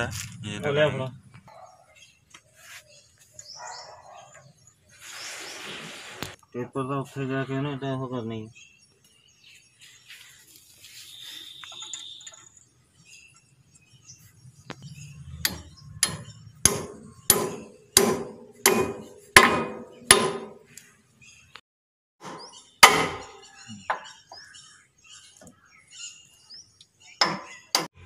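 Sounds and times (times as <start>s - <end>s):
hammer striking steel bolt: 15.4s - 20.6s.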